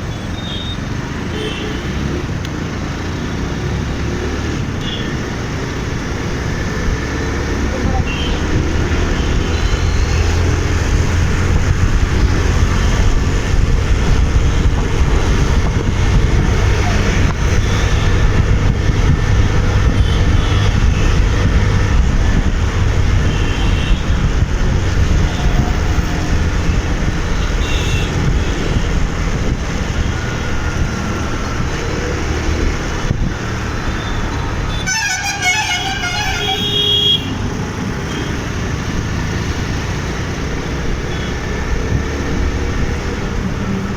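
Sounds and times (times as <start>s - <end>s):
motorcycle engine and road noise: 0.0s - 43.9s
vehicle horns tooting: 7.9s - 10.4s, 17.1s - 18.3s, 19.8s - 21.2s, 23.2s - 24.2s, 27.3s - 28.7s, 33.9s - 38.4s.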